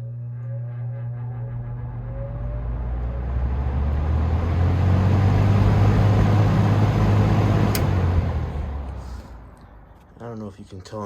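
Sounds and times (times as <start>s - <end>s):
fan motor hum: 1.1s - 10.1s
sharp click: 7.7s - 8.0s.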